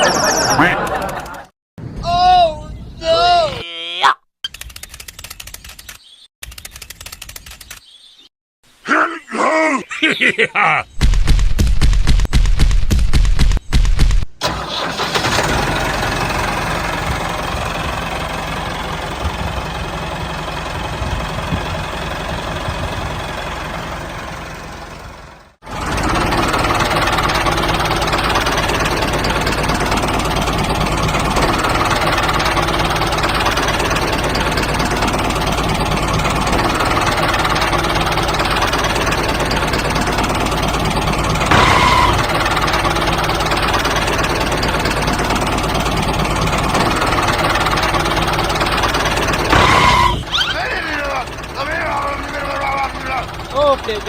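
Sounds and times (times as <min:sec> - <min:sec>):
small tractor motor running: 0:00.6 - 0:01.4, 0:14.4 - 0:54.0.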